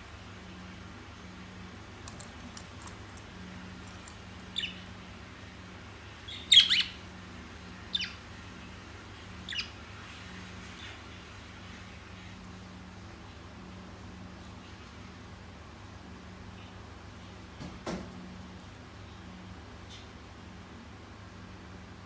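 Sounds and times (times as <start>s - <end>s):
faint low hum: 0.0s - 22.0s
parrot squawking: 6.3s - 7.0s.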